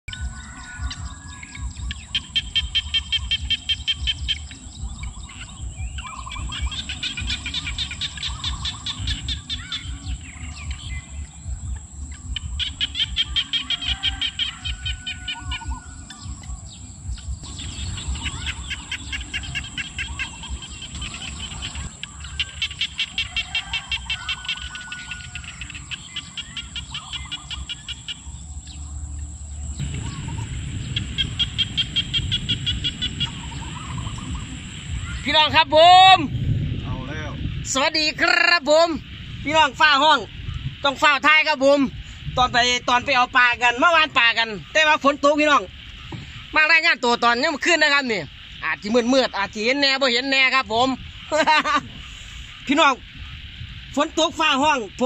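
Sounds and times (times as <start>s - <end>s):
birds chirping in rapid trills: 0.1s - 55.0s.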